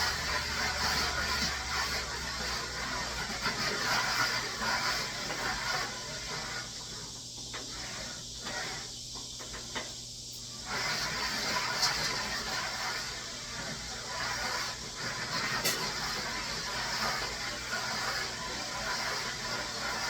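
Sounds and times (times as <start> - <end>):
food sizzling on a griddle: 10.3 - 20.0.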